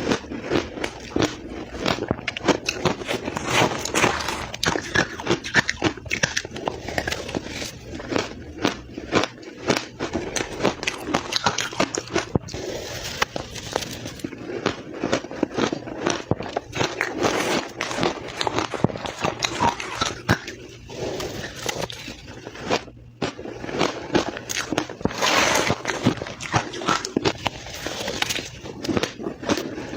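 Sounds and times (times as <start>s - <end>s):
crushed ice being chewed: 0.0s - 29.9s.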